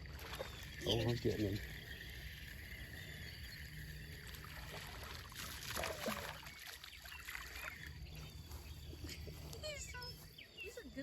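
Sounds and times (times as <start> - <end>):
water splashing and dripping: 0.0 - 1.8, 4.2 - 8.0
steady low hum: 0.0 - 11.0.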